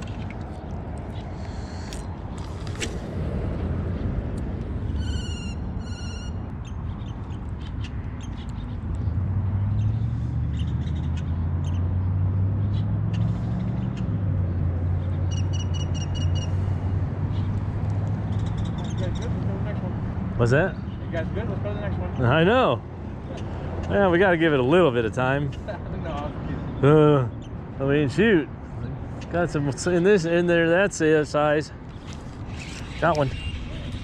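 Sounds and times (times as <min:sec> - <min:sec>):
bird calling rapid high notes: 0:05.0 - 0:06.4.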